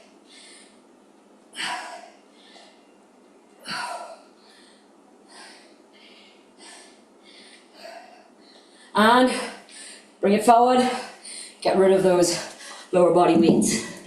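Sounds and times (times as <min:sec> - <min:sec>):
woman breathing hard: 0:00.0 - 0:00.9, 0:01.5 - 0:02.9, 0:03.6 - 0:10.2, 0:10.8 - 0:11.6.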